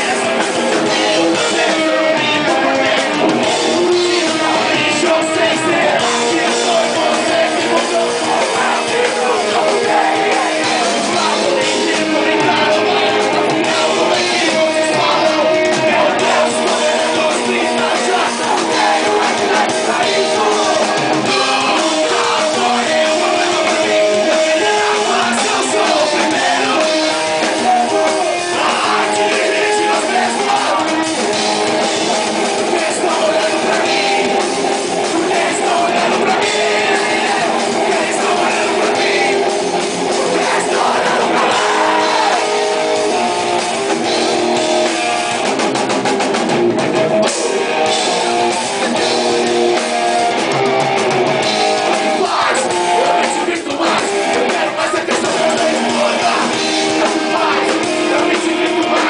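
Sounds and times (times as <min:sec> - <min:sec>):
drum kit: 0:00.0 - 0:59.0
electric guitar: 0:00.0 - 0:59.0.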